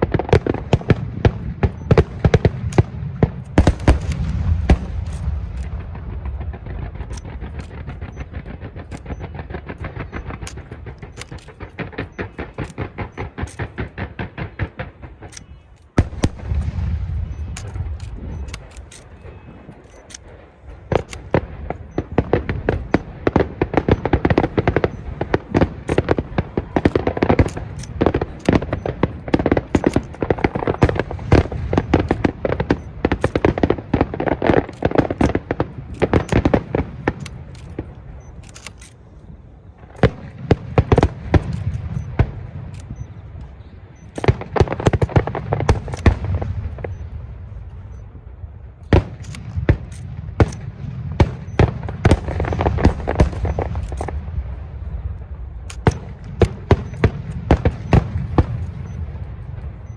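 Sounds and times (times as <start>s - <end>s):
deep firework booms: 0.0s - 38.4s, 39.4s - 59.9s
fireworks crackling: 0.0s - 59.9s.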